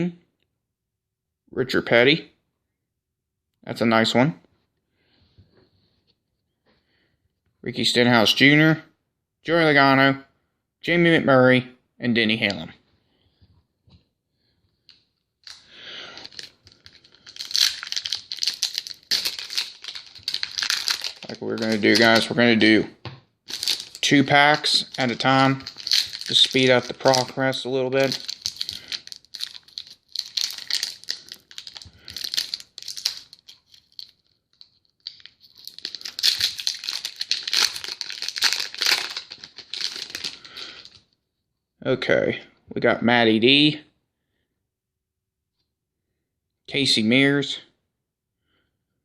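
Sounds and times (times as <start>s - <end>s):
wrappers torn and crinkled: 15.4s - 22.4s, 23.5s - 41.0s.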